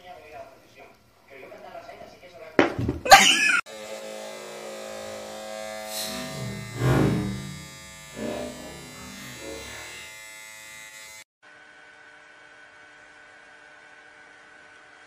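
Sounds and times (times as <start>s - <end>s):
small motor buzzing: 3.7s - 15.0s
loud bump: 6.1s - 9.1s.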